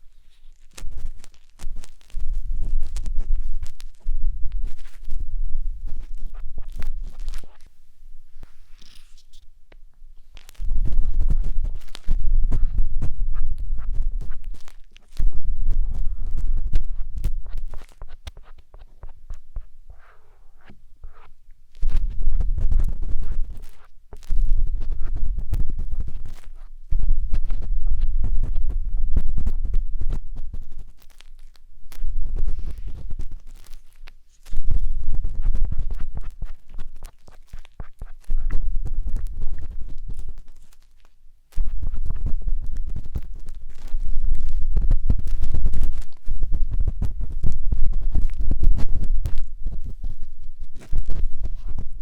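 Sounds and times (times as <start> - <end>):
matchstick scratching in ear: 0.0 - 7.8, 8.4 - 9.5, 10.2 - 52.0
low thumping contact noise: 31.9 - 33.5.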